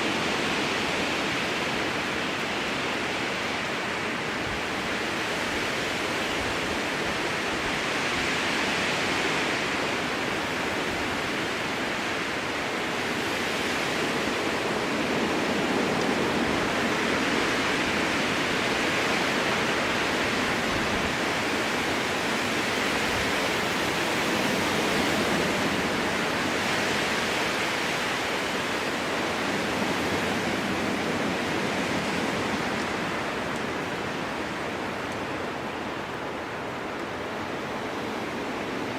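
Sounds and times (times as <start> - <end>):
strong wind through forest: 0.0 - 38.9.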